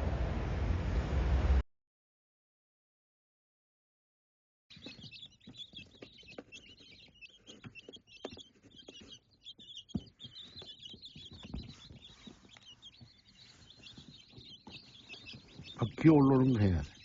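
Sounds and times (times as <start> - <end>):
small birds chirping: 4.7 - 17.0.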